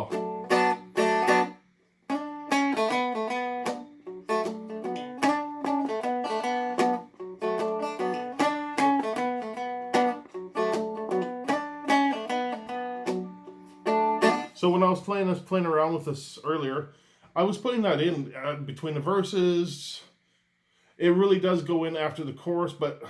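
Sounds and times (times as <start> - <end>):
plucked string riff: 0.0 - 14.6.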